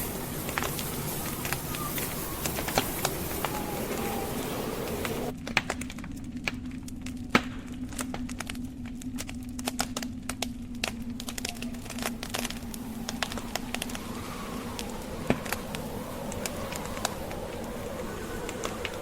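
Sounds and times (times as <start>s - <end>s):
wind rushing: 0.0s - 5.3s, 11.1s - 19.0s
logs crackling in fireplace: 0.0s - 19.0s
low hum: 0.0s - 19.0s.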